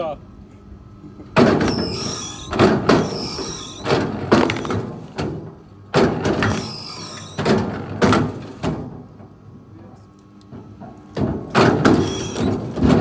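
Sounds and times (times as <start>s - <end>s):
heavy knocks: 1.4s - 6.8s, 10.6s - 13.0s.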